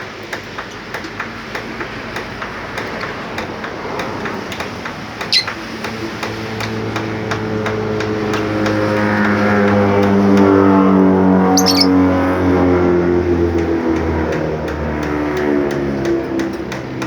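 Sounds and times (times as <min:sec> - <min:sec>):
bird high chirp: 0:05.3 - 0:05.6, 0:11.6 - 0:11.9
held tones shifting in pitch: 0:11.5 - 0:12.0.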